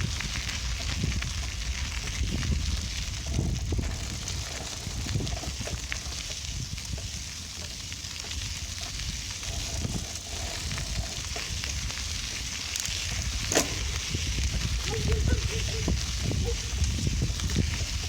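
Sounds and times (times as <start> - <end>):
bicycle tyres rolling: 0.0 - 18.0
wind rumbling on microphone: 0.0 - 18.0.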